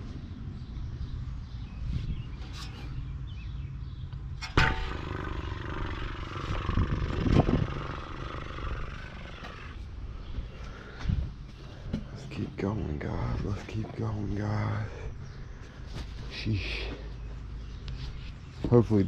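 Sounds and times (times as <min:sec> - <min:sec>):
sharp metal clang: 0:04.4 - 0:05.4
sheet metal rattling and scraping: 0:04.4 - 0:09.8.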